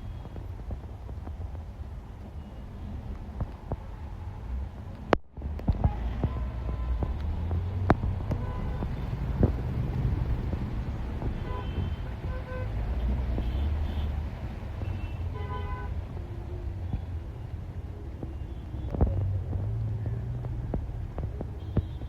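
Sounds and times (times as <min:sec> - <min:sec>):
bus engine and road rumble: 0:00.0 - 0:22.0
vehicle horn toots: 0:11.4 - 0:14.1.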